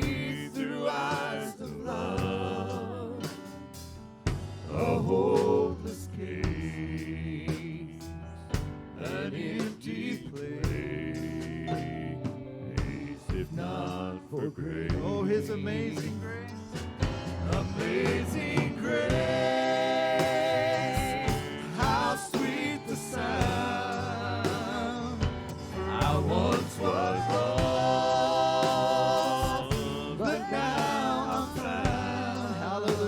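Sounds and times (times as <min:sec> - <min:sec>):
gospel singing voices: 0:00.0 - 0:33.0
instrumental backing: 0:10.7 - 0:33.0.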